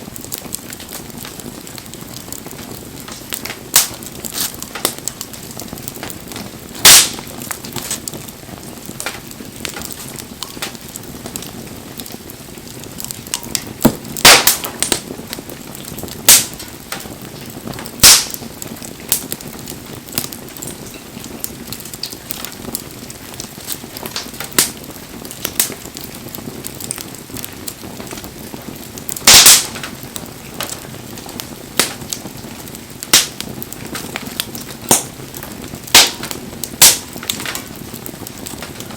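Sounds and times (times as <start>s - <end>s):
fire hissing: 0.0s - 38.9s
wood fire crackling: 0.0s - 38.9s
loud sharp pops: 3.0s - 6.2s, 6.8s - 8.2s, 8.8s - 11.4s, 13.3s - 15.2s, 15.9s - 17.1s, 17.7s - 19.4s, 29.2s - 30.0s, 31.8s - 32.3s, 33.1s - 34.3s, 34.9s - 35.2s, 35.9s - 37.7s.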